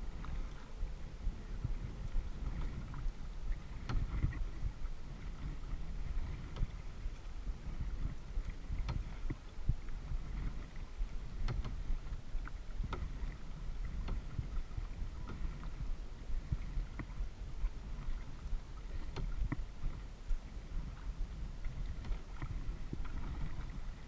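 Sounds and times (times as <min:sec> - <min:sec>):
paddle splashing water: 0:00.0 - 0:24.0
steady low rumble: 0:00.0 - 0:24.0.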